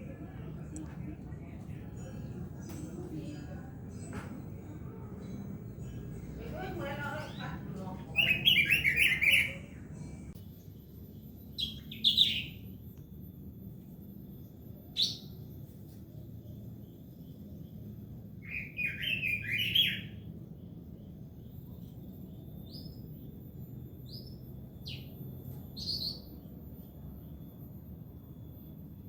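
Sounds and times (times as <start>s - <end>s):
bird singing and chirping: 3.7s - 12.8s, 14.9s - 15.5s, 18.4s - 27.0s.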